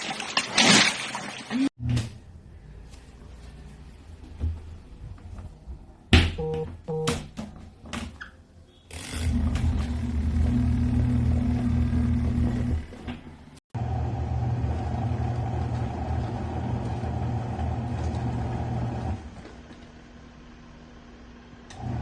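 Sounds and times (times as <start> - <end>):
washing machine motor humming: 8.9 - 22.0.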